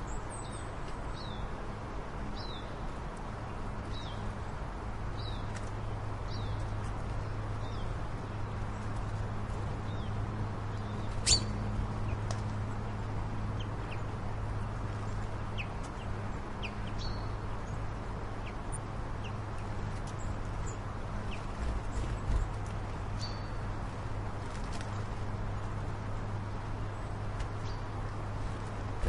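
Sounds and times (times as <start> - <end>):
steady low hum: 0.0 - 29.0
bird chirps: 10.8 - 12.2.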